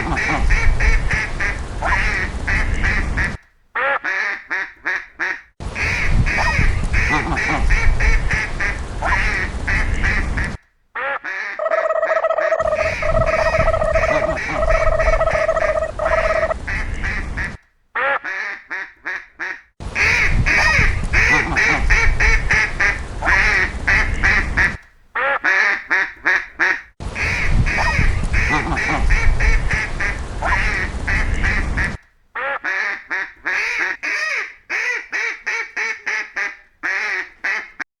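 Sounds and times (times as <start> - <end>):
ducks quacking: 0.0 - 37.8
steady tone: 11.6 - 16.6.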